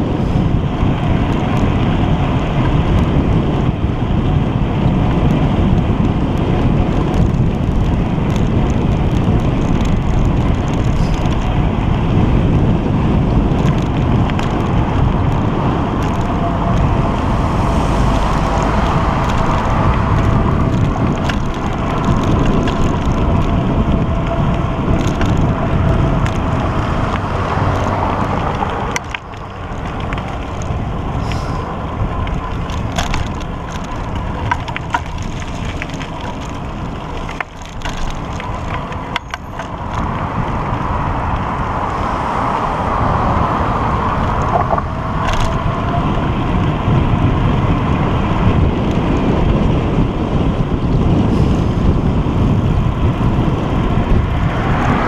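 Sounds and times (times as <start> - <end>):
rumbling road noise: 0.0 - 55.0
wind rushing on microphone: 0.0 - 55.0
sharp clicks and crunches: 6.9 - 11.7, 13.4 - 40.6, 44.3 - 45.7.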